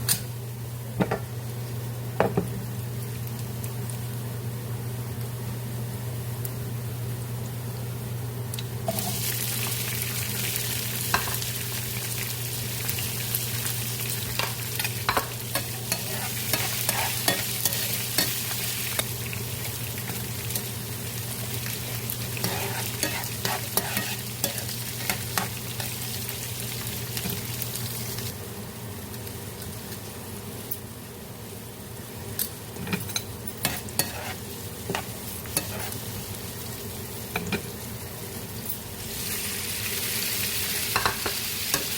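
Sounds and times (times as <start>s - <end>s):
food sizzling in a frying pan: 0.0s - 41.9s
spatula scraping pan: 15.6s - 18.4s, 22.4s - 25.5s, 33.6s - 36.0s.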